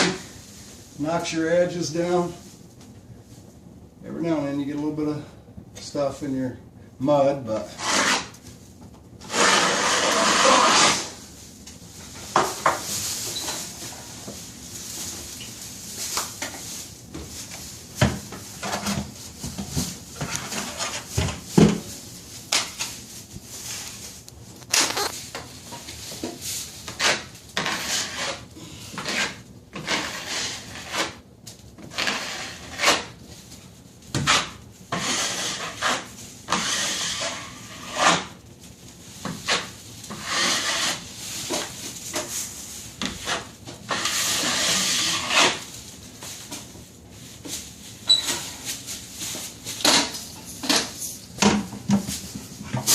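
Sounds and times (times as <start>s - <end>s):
taping knife scraping joint compound: 7.6s - 8.4s, 9.2s - 11.2s, 26.9s - 31.2s, 31.8s - 33.2s, 34.2s - 38.4s, 39.2s - 42.2s, 43.0s - 45.7s.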